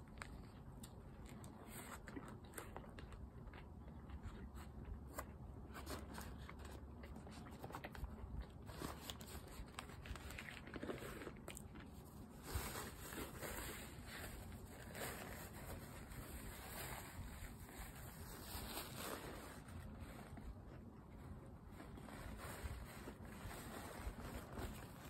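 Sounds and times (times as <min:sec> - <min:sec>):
chewing with crunches: 0:00.0 - 0:25.0.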